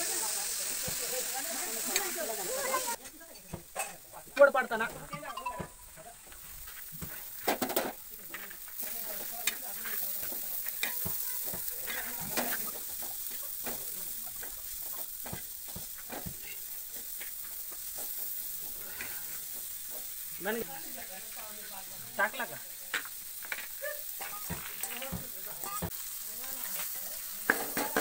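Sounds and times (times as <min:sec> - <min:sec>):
vegetables sizzling in hot oil: 0:00.0 - 0:28.0
metal spatula scraping a pan: 0:06.5 - 0:13.8, 0:17.9 - 0:19.8.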